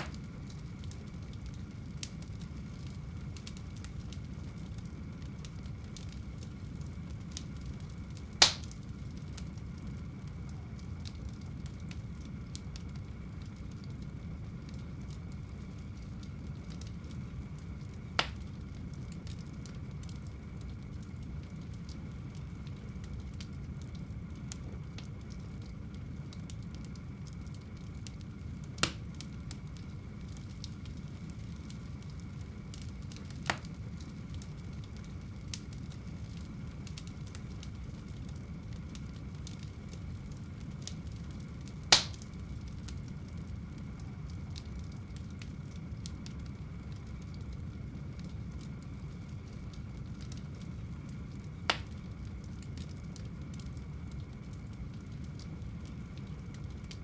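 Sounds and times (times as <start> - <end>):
fire popping: 0.0 - 57.0
fire rumbling and crackling: 0.0 - 57.0.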